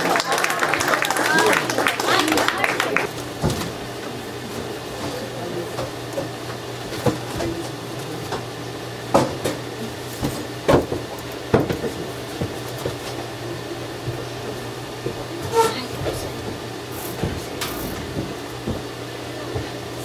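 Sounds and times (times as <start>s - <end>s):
steady low hum: 1.5s - 20.0s
knocks and thumps: 10.2s - 13.2s, 14.0s - 19.0s.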